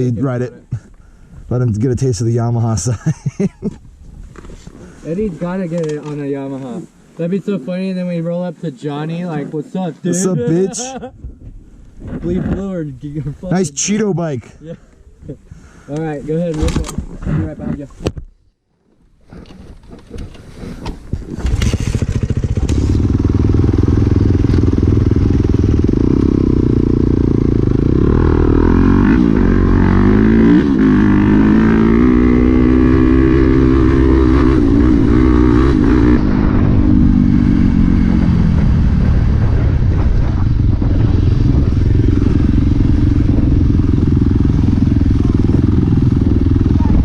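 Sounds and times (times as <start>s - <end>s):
dirt bike engine revving: 21.4s - 47.0s.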